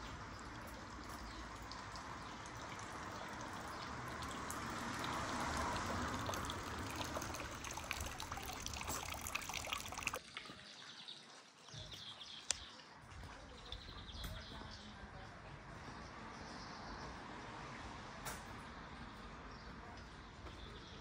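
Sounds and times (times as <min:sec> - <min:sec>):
rain falling: 0:00.0 - 0:10.6
water trickling: 0:00.0 - 0:14.5.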